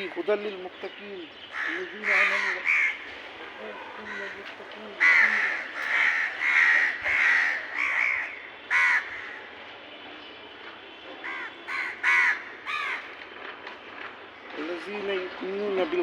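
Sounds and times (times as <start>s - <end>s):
crows cawing: 0.0s - 0.5s, 1.3s - 9.6s, 11.2s - 13.4s.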